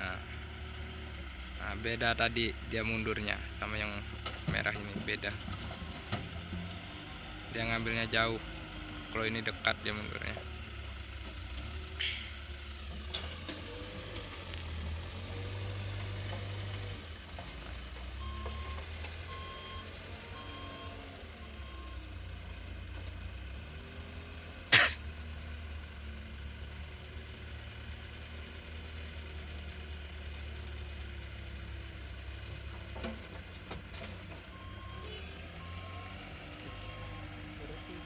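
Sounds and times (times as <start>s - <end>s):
truck engine running: 0.0s - 38.0s
reversing alarm beeping: 18.2s - 21.0s, 34.5s - 37.3s.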